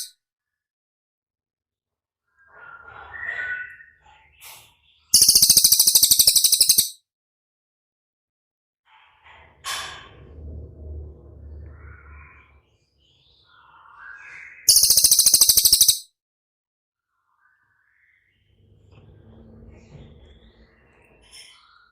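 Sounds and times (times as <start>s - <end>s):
songbird singing: 5.1s - 6.9s, 11.7s - 16.0s
high rapid bird trill: 5.1s - 7.0s, 14.7s - 16.1s.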